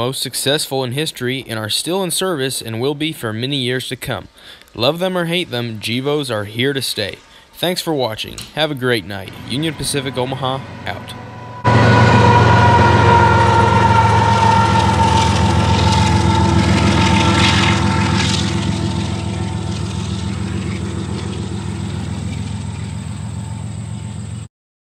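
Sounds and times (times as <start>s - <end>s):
wheels running on rail: 8.3s - 24.5s
locomotive engine drone: 8.4s - 24.5s
high whining tones: 8.5s - 24.5s.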